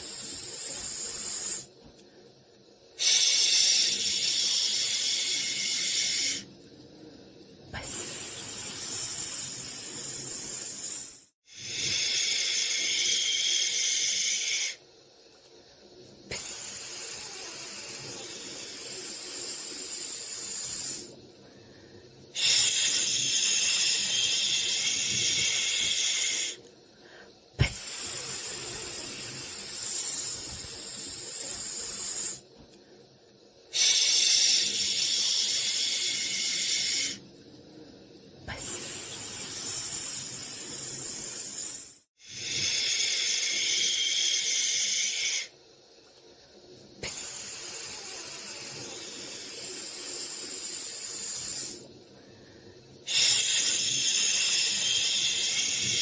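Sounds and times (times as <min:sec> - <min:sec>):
white noise hiss bursts: 0:00.0 - 0:56.0.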